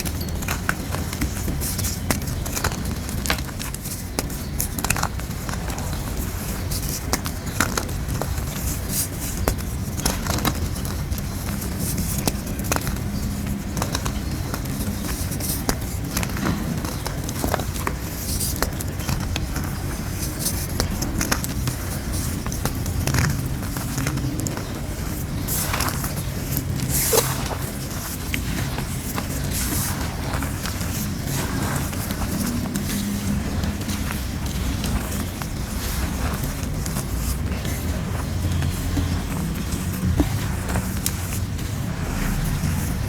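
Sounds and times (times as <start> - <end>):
chalk crunching: 0.0 - 43.0
low rumble: 39.1 - 43.0.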